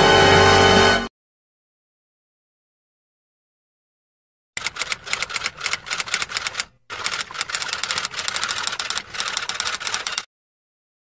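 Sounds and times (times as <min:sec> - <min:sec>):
typewriter keystrokes clicking: 0:04.6 - 0:10.3.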